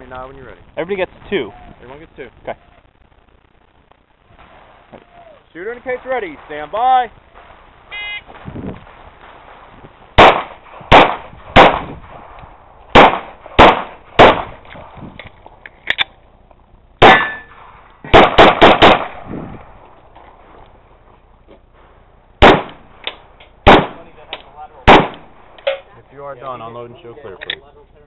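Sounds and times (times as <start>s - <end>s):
handgun shots: 10.2s - 12.0s, 13.0s - 14.8s, 17.0s - 19.2s, 22.4s - 25.8s.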